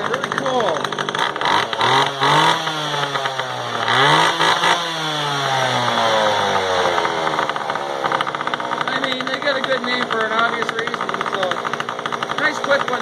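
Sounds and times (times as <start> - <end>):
chainsaw idling: 0.0 - 13.0.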